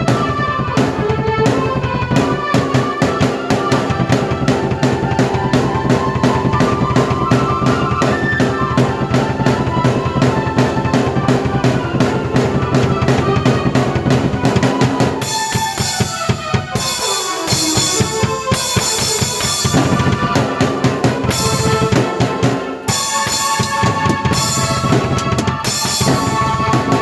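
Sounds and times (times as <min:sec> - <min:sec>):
drum kit: 0:00.0 - 0:27.0
bright cymbals: 0:14.6 - 0:27.0.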